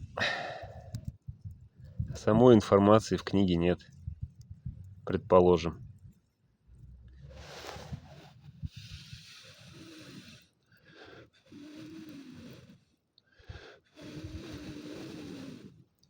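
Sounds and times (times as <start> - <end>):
person exhaling wheezily: 0.1 - 1.0
low thumps: 3.8 - 7.0.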